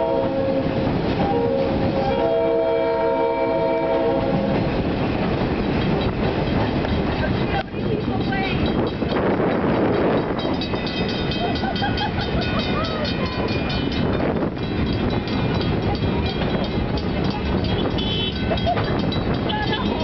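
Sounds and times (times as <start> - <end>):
train wheel and rail rumble: 0.0 - 20.0
crossing warning bell ringing: 5.6 - 20.0.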